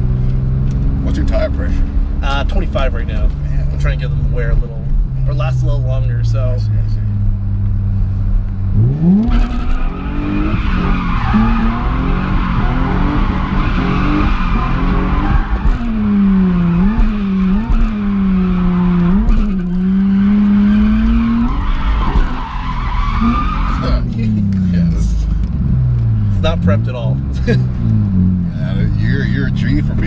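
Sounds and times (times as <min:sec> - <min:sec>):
car engine revving: 0:00.0 - 0:30.0
tires squealing: 0:08.8 - 0:28.0.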